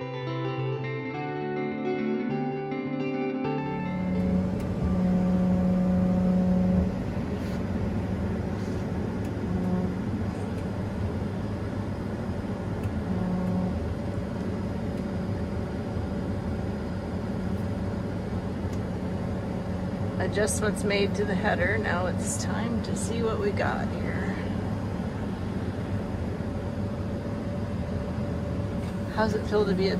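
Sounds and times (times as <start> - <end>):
combine harvester engine hum: 3.6 - 29.9.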